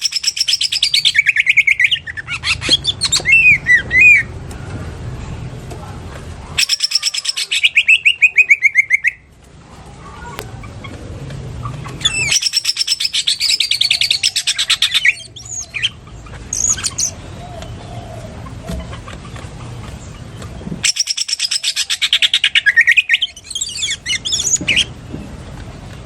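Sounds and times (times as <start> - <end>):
bird chattering song: 0.0 - 4.4, 6.5 - 9.3, 10.2 - 25.4
short bird calls: 6.6 - 9.3, 11.6 - 19.1, 20.0 - 24.9.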